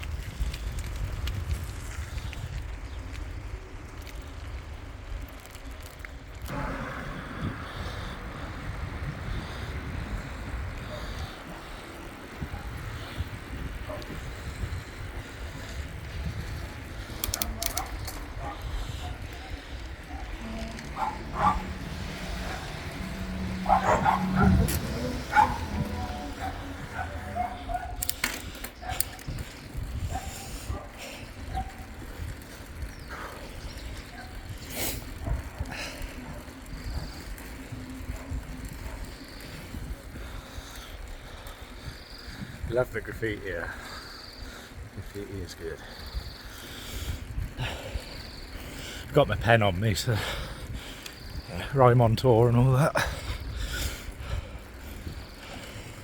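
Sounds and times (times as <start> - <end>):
wind on microphone: 0.0 - 3.5, 6.4 - 42.9, 44.8 - 48.7
bicycle rumbling over road: 0.0 - 56.0
sharp clicks: 17.0 - 18.4.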